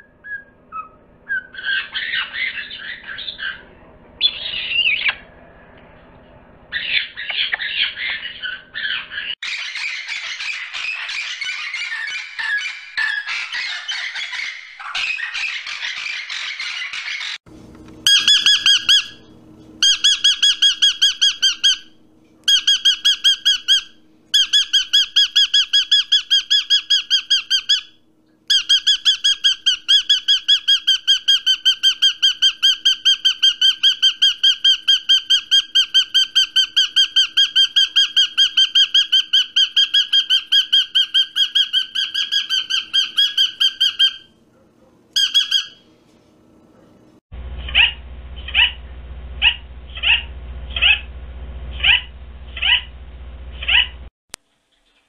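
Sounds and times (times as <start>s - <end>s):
bird squawking rapidly: 6.7s - 17.4s, 18.1s - 19.2s, 19.8s - 21.9s, 45.2s - 45.8s, 47.6s - 48.8s, 49.4s - 51.1s, 51.8s - 52.9s, 53.6s - 54.0s.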